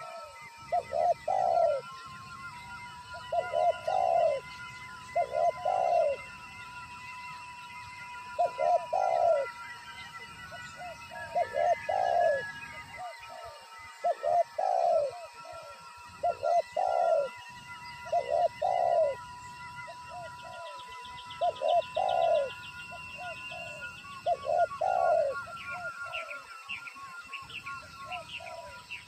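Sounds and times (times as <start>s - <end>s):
dove cooing: 0.0s - 29.0s
steady high-pitched tone: 0.0s - 29.0s.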